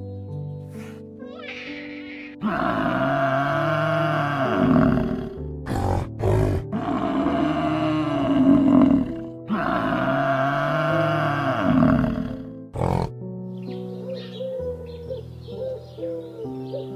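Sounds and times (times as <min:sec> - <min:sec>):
background music: 0:00.0 - 0:16.9
big cat roaring: 0:01.4 - 0:13.1.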